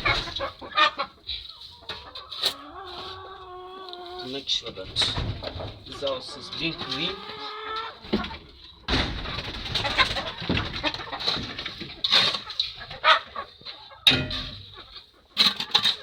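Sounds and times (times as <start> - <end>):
chickens clucking: 0.0 - 16.0
scraping and knocking: 4.6 - 7.1, 8.0 - 13.0, 14.0 - 16.0.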